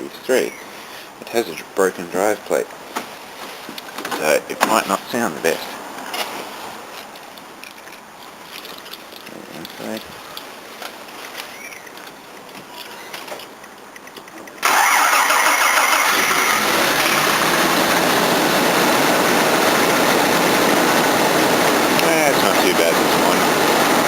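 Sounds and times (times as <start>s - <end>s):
car engine starting and idling: 14.6s - 24.0s.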